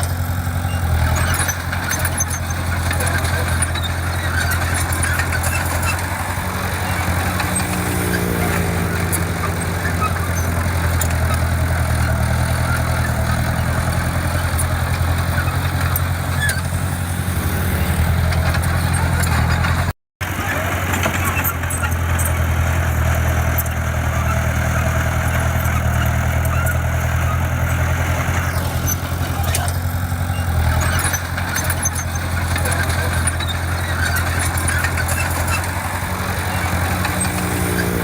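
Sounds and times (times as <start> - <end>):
heavy diesel engine humming: 0.0 - 38.0.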